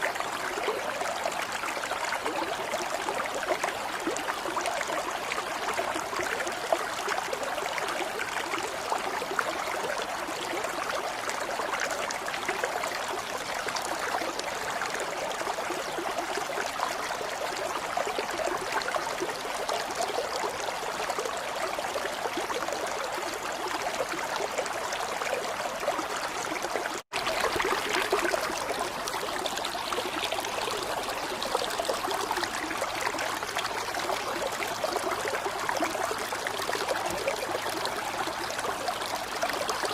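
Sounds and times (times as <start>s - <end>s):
running water trickling: 22.8s - 39.9s.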